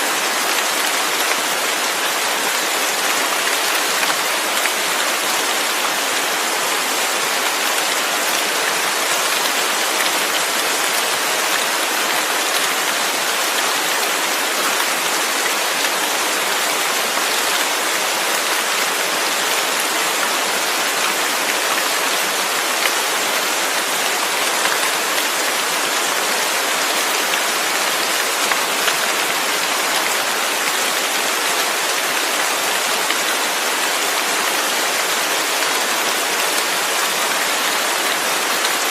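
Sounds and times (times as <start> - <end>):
dense rain falling: 0.0 - 38.9.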